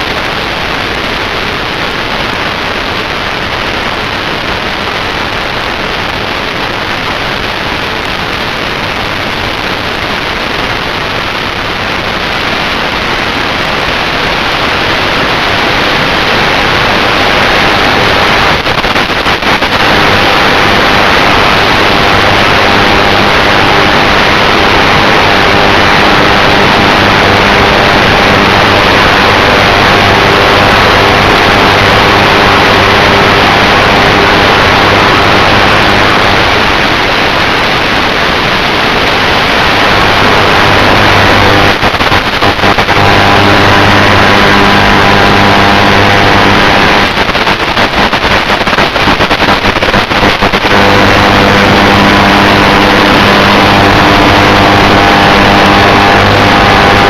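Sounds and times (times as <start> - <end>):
crackling signal dropouts: 0.0 - 57.0
drone motors humming: 39.8 - 47.1, 50.7 - 57.0.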